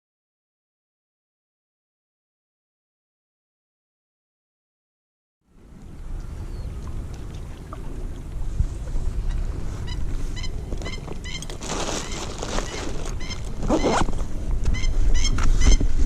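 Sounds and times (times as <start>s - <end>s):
wind rumble on microphone: 5.5s - 16.0s.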